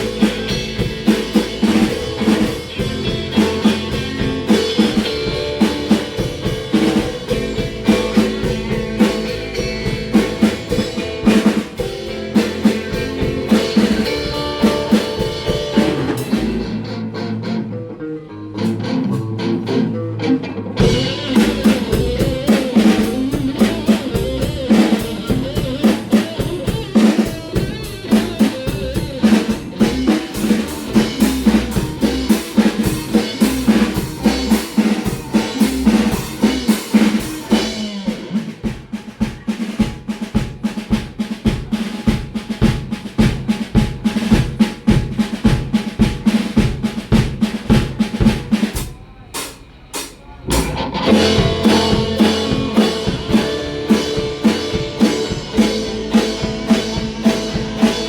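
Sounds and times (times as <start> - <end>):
drum kit beat: 0.0 - 17.3, 20.8 - 58.0
rock band playing: 0.0 - 58.0.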